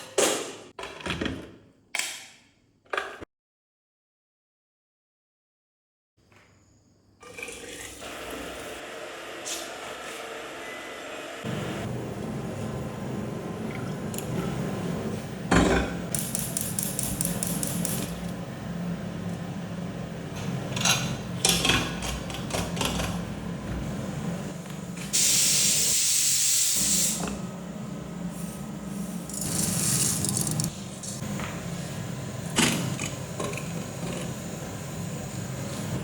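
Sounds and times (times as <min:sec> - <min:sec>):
loud hiss: 0:25.2 - 0:27.2.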